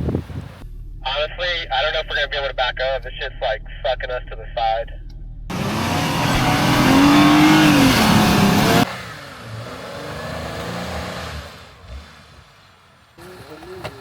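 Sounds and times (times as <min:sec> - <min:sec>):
off-road engine revving: 0:00.6 - 0:14.0
loud rushing noise: 0:05.5 - 0:09.1.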